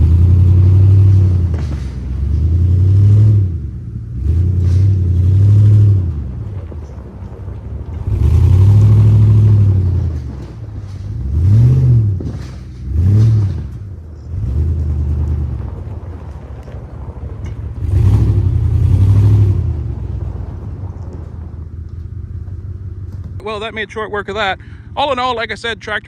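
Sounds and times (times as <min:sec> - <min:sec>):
tractor engine working: 0:00.0 - 0:26.0.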